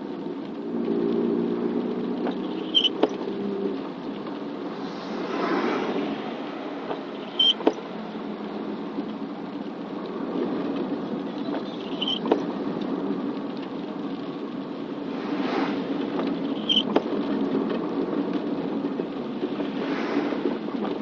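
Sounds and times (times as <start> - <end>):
car running on road: 0.0 - 21.0
rain on vehicle: 0.0 - 21.0
high squeak with sharp click: 2.5 - 3.1, 7.2 - 7.8, 11.8 - 12.4, 16.6 - 17.0.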